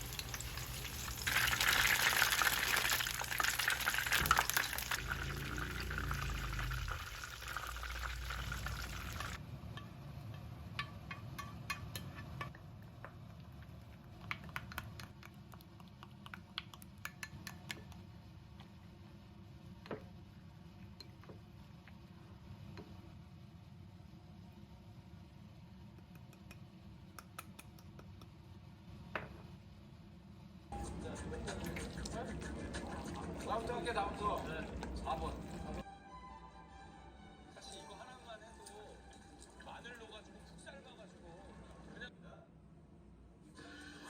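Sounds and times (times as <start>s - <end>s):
liquid being poured: 0.0s - 9.4s.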